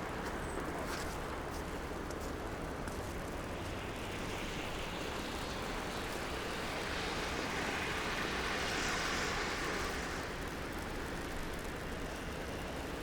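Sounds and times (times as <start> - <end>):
city traffic: 0.0 - 13.0
tyres hissing on snow: 3.6 - 10.5.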